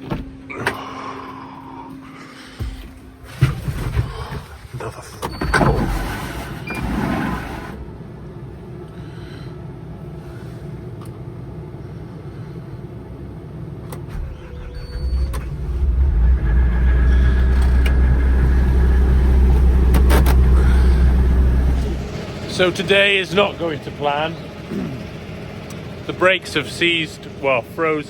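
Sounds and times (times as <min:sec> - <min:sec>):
tractor engine running: 0:13.2 - 0:28.0.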